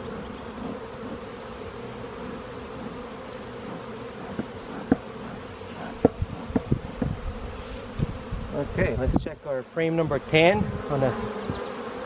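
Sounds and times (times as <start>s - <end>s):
honeybees buzzing: 0.0s - 12.0s
sharp knocks or clicks: 6.0s - 7.2s.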